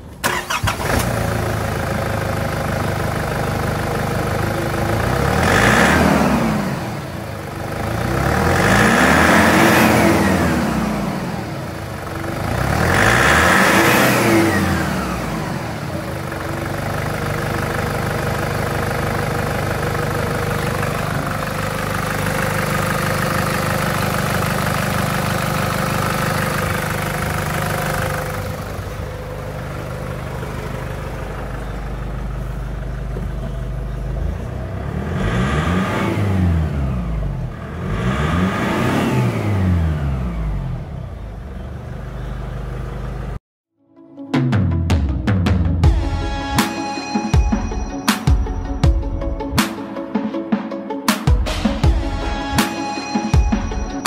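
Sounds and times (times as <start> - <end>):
engine starting: 0.0 - 1.6
engine idling: 0.0 - 37.9, 39.4 - 43.4
engine revving: 0.2 - 43.4.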